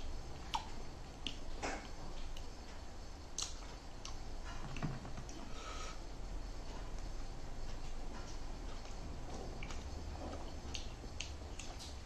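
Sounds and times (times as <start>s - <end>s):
wet mouth clicks and smacks: 0.4s - 1.4s, 3.4s - 4.2s, 10.7s - 12.0s
chewing: 8.2s - 12.0s.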